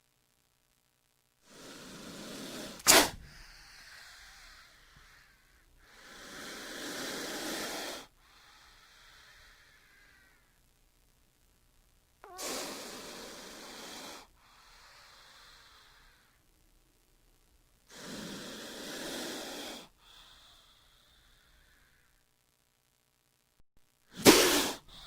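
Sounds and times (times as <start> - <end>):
snake hissing: 1.4 - 10.5, 12.2 - 16.4, 17.9 - 22.2, 24.1 - 25.0.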